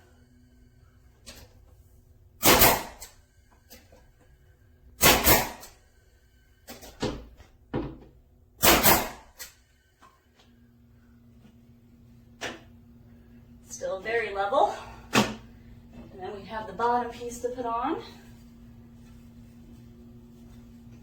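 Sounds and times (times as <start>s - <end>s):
nail gun firing: 2.4s - 3.2s, 5.0s - 5.8s, 8.6s - 9.5s.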